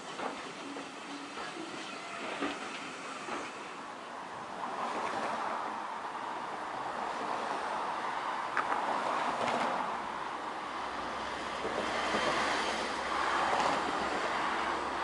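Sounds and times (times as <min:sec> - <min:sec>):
train wheel and rail noise: 0:00.0 - 0:15.0
train wheel squeals: 0:00.4 - 0:03.7.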